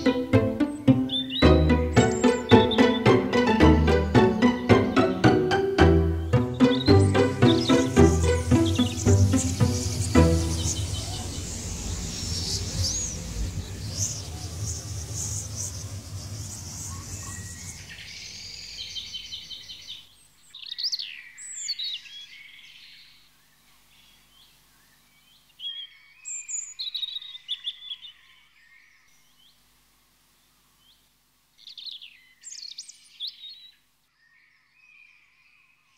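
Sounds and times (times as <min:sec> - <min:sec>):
soundtrack music: 0:00.0 - 0:11.3
birds chirping: 0:00.0 - 0:29.6.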